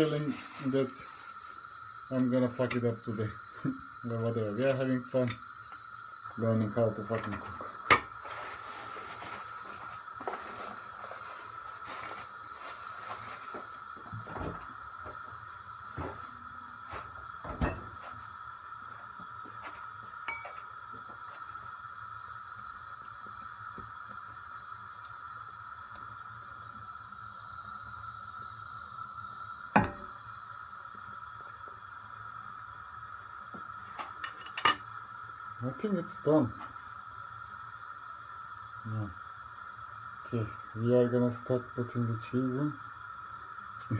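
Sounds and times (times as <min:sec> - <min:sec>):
steady high-pitched hum: 0:08.7 - 0:37.0
utensils clinking on cookware: 0:20.3 - 0:20.6, 0:34.2 - 0:34.8.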